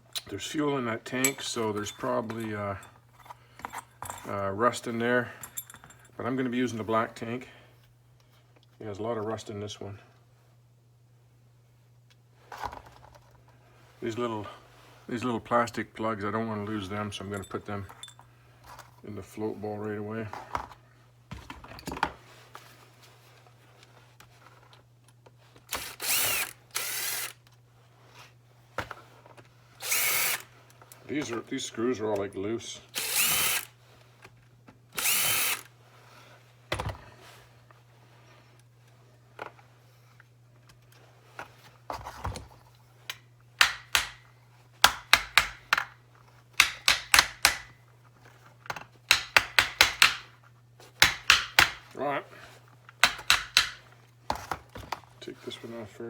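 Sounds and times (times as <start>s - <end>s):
metal tools clicking and knocking: 1.2s - 3.0s, 5.4s - 6.1s, 17.3s - 18.2s, 53.0s - 53.9s
electric drill running in bursts: 25.7s - 27.4s, 29.8s - 30.5s, 32.9s - 33.8s, 34.9s - 35.7s.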